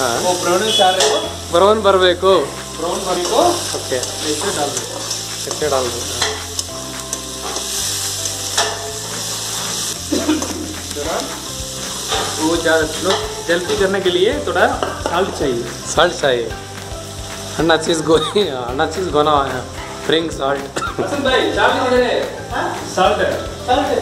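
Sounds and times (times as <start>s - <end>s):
onions sizzling in hot oil: 0.0s - 24.0s
metal spatula scraping: 0.1s - 1.4s, 2.8s - 15.4s.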